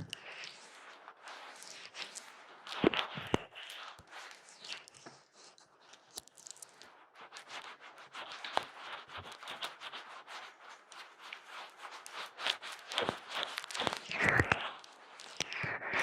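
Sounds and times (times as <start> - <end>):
fingers scratching on microphone: 7.3 - 16.0.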